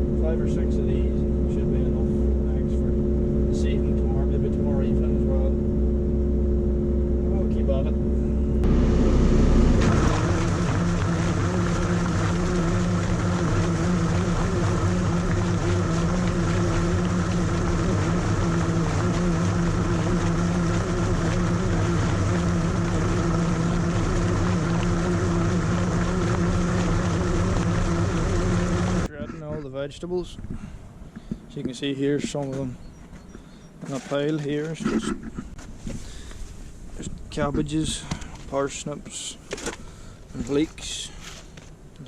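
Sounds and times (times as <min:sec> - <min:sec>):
diesel engine under load: 0:00.0 - 0:29.1
shredder bucket churning vegetables: 0:08.7 - 0:29.1.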